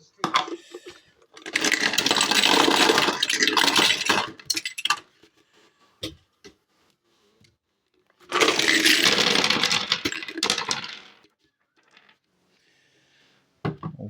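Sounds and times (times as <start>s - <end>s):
small hard pieces clattering on table: 0.2s - 5.1s, 8.2s - 12.2s.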